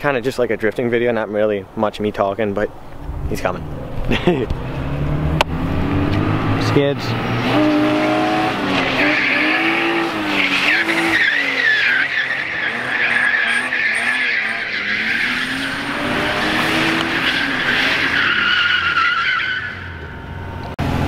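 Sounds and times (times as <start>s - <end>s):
car engine revving: 3.0s - 21.0s
tyres squealing: 7.4s - 20.2s.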